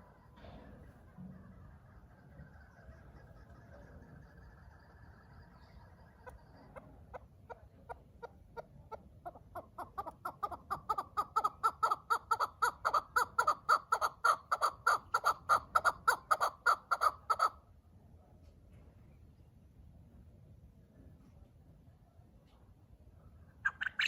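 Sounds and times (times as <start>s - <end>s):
partridge clucking calls: 0.0s - 17.6s, 23.6s - 24.0s.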